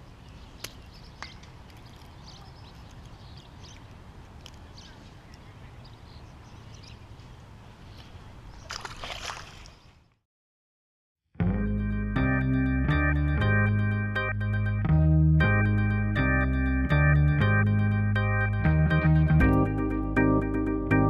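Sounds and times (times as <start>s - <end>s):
water sloshing: 8.6s - 9.8s.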